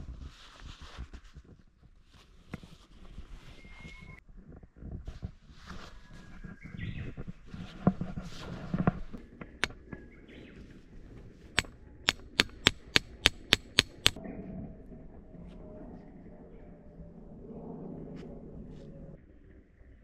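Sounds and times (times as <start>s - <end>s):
tent peg being hammered: 11.6s - 14.2s
scattered knocks: 12.1s - 14.2s.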